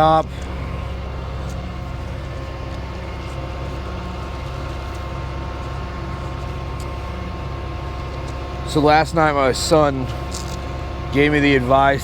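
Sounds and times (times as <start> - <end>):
tow truck engine idling: 0.0 - 12.0.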